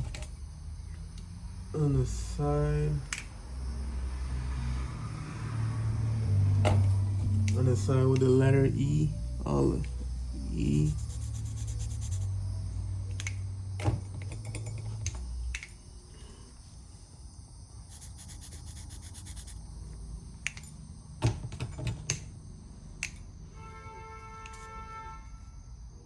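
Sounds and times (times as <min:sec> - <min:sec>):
low steady hum: 0:05.8 - 0:17.7.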